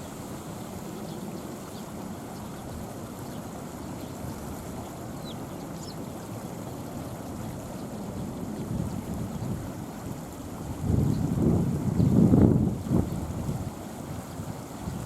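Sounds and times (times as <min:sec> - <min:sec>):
wind buffeting microphone: 0:08.3 - 0:10.0, 0:10.6 - 0:15.0.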